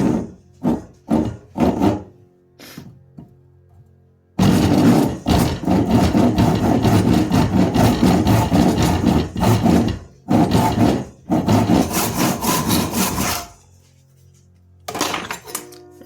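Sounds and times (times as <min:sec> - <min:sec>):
saw cutting wood: 0:00.0 - 0:02.8, 0:04.4 - 0:13.7.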